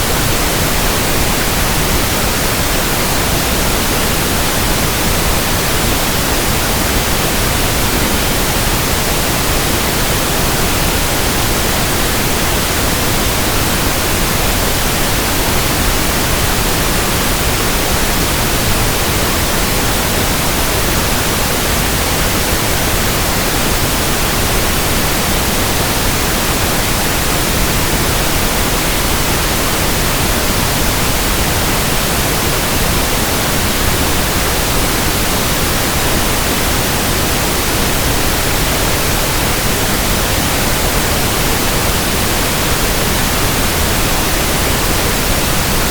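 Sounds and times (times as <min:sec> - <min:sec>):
pink noise hiss: 0:00.0 - 0:45.9.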